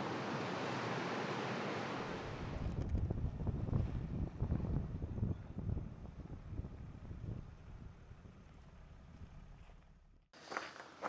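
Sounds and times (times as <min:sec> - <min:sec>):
wind buffeting microphone: 0:02.2 - 0:09.5.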